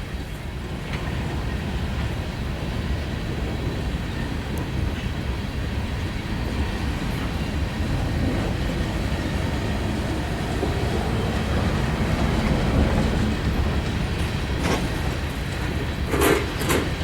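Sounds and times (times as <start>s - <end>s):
freight train rumbling past: 0.0s - 17.0s
train wheel click: 6.0s - 17.0s.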